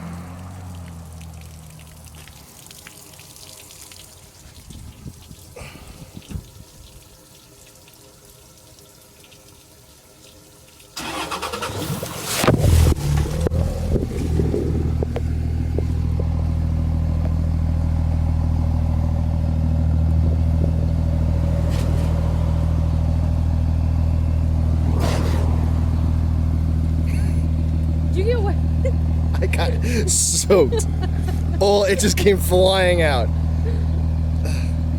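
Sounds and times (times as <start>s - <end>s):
exhaust burst of water: 5.5s - 6.4s, 11.0s - 15.1s, 24.7s - 27.6s, 29.5s - 30.4s
starter cranking engine: 11.0s - 16.0s
diesel engine idling: 11.0s - 34.9s.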